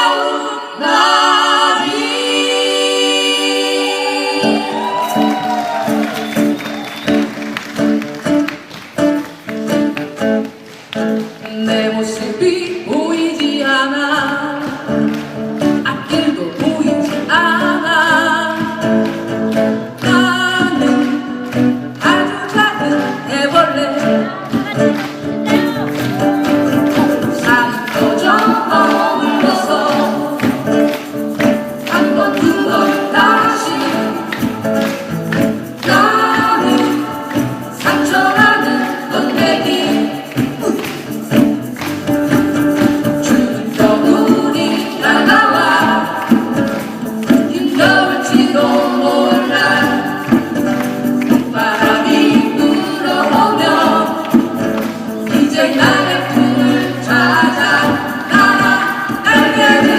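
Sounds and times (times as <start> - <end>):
live band music: 0.0 - 59.9.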